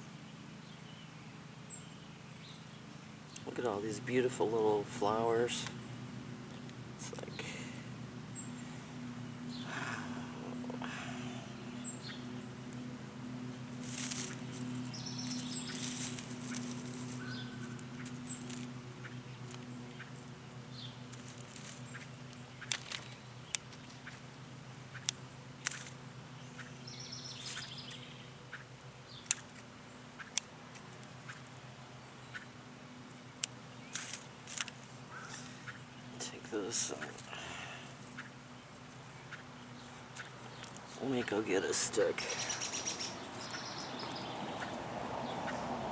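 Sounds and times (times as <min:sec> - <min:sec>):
steady low hum: 0:00.0 - 0:45.9
bird chirps: 0:11.4 - 0:12.9, 0:14.2 - 0:34.4, 0:35.1 - 0:45.8
plants rustling and clicking: 0:12.2 - 0:20.4, 0:21.0 - 0:24.3, 0:24.9 - 0:26.0, 0:29.2 - 0:31.7, 0:33.4 - 0:35.6, 0:36.2 - 0:39.3, 0:39.9 - 0:44.8.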